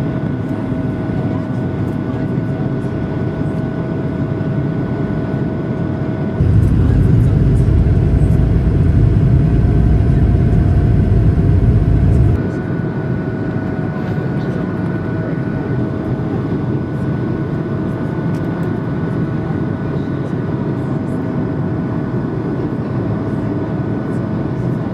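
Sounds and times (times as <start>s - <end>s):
jet engine drone with whine: 0.0s - 24.9s
loud low rumble: 6.4s - 12.4s.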